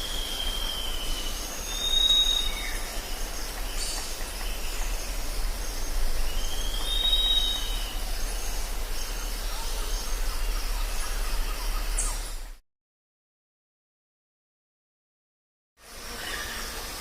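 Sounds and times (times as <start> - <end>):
drawn-out whistled call: 0.0 - 12.5
insects and birds calling: 0.0 - 12.6, 15.8 - 17.0
low steady hum: 0.0 - 12.6.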